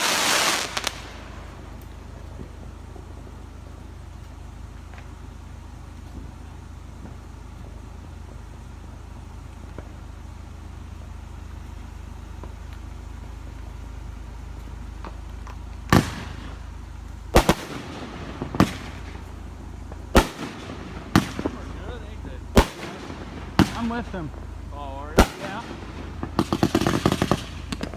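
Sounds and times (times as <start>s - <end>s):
fireworks bangs: 0.0s - 3.9s, 15.0s - 27.9s
low steady hum: 0.0s - 27.9s.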